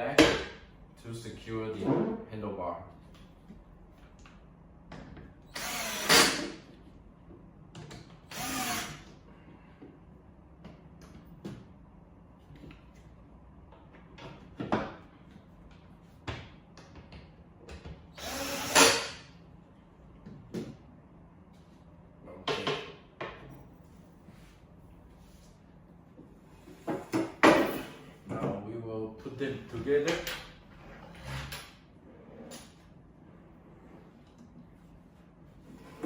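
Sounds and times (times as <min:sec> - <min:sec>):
power drill running: 0:05.5 - 0:06.5, 0:08.3 - 0:09.1, 0:18.2 - 0:19.1.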